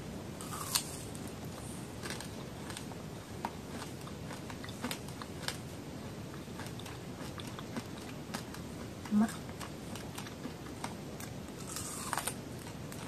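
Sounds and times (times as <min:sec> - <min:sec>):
steady background hiss: 0:00.0 - 0:13.0
chewing with wet mouth clicks: 0:06.3 - 0:13.0.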